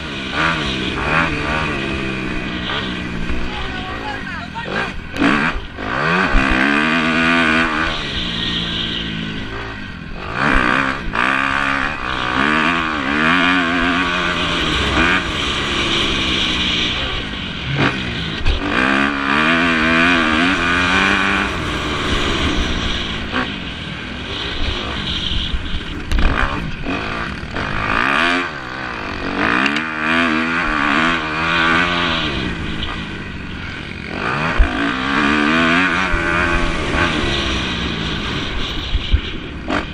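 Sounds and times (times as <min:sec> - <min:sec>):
motocross engines revving: 0:00.0 - 0:39.9.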